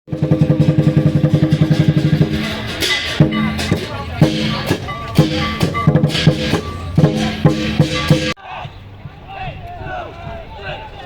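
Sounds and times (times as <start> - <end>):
drum roll: 0.1 - 8.4
drum tones: 0.1 - 8.4
bright sharp hit: 0.2 - 8.4.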